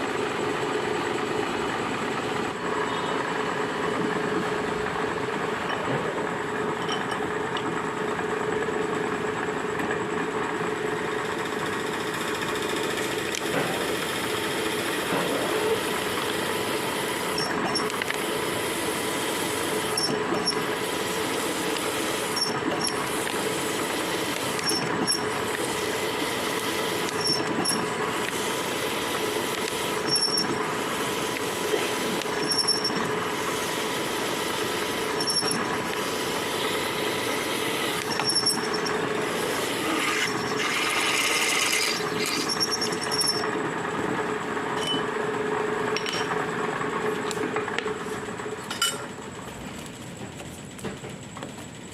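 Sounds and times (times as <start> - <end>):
milling machine running: 0.0 - 48.4
short high-pitched squeaks: 32.4 - 33.0, 35.2 - 35.7, 38.0 - 39.0, 41.7 - 43.5.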